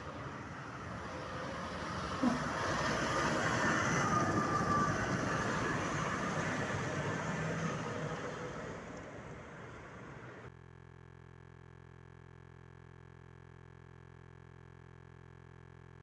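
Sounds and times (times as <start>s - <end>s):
vehicle passing by: 0.0s - 10.5s.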